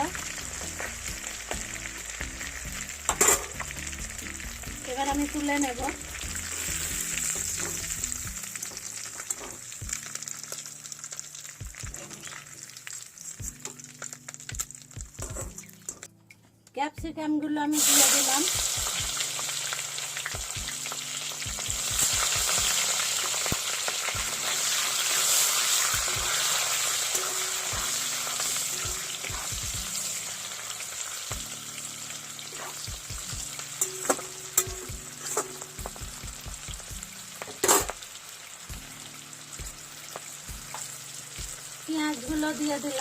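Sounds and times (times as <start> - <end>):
vegetables sizzling in oil: 0.0 - 16.1, 17.7 - 43.0.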